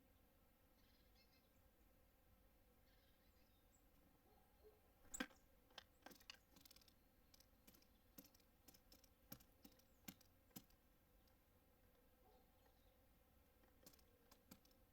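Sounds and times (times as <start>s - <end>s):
birds pecking at seeds: 5.0s - 11.4s, 13.5s - 14.9s.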